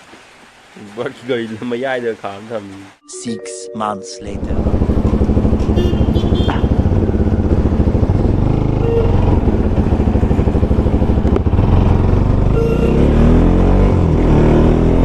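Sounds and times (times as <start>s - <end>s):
motorcycle engine running: 4.4s - 13.9s.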